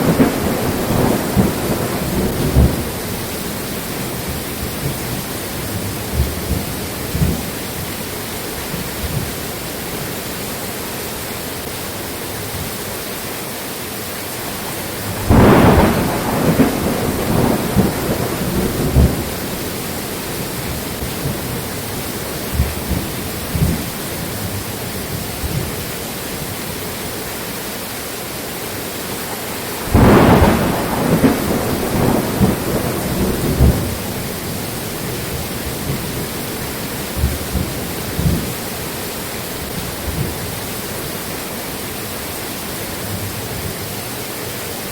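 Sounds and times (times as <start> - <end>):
thunder claps rumbling: 0.0 - 9.4, 15.0 - 25.9, 29.4 - 40.9
steady rain: 0.0 - 44.9.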